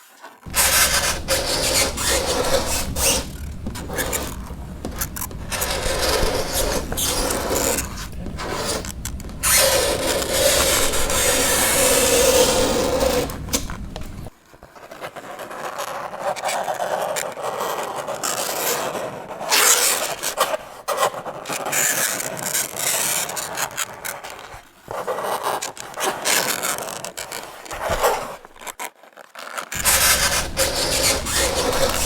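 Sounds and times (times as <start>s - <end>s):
fingernails scraping a chalkboard: 0.5s - 14.3s, 29.8s - 32.0s.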